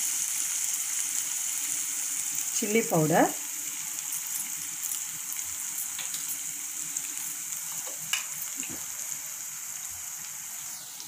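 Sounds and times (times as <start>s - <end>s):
onions frying in oil: 0.0s - 11.0s.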